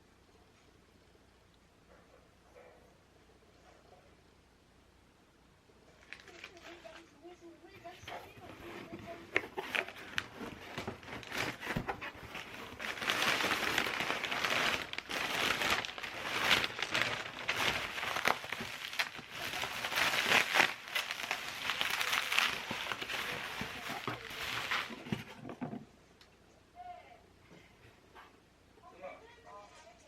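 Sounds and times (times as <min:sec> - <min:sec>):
material rustling and crinkling: 0:05.9 - 0:07.1, 0:07.7 - 0:25.9.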